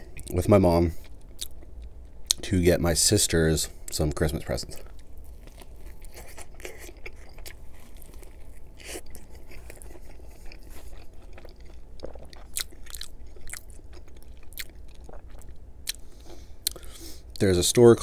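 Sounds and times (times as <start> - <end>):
biting and chewing food: 4.5 - 17.2.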